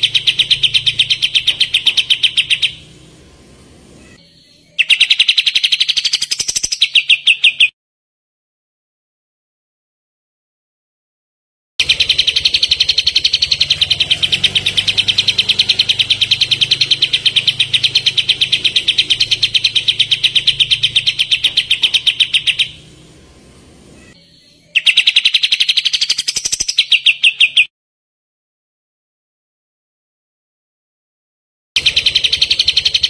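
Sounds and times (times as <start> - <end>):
bird trilling high notes: 0.0 - 3.0, 11.8 - 23.0, 31.8 - 33.0.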